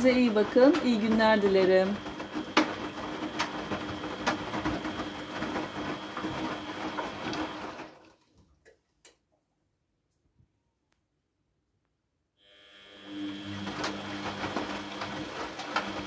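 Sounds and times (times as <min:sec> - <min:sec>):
washing machine motor humming: 0:00.0 - 0:08.4, 0:12.4 - 0:16.0.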